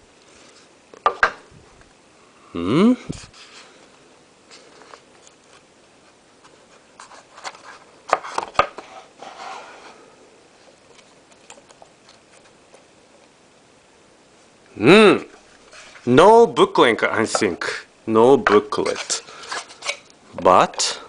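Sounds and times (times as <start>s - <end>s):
rustling scrape: 3.1s - 3.9s, 4.5s - 10.2s, 15.5s - 16.2s, 18.7s - 20.0s.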